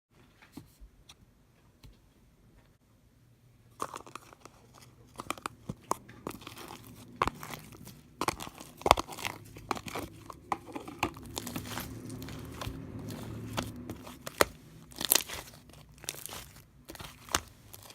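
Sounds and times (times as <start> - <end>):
slime crackling and popping: 5.0 - 17.9.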